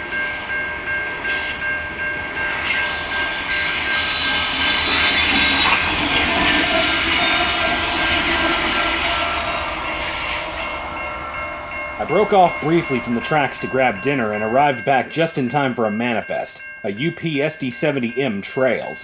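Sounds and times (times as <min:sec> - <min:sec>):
high wheel squeal: 0:02.7 - 0:12.3.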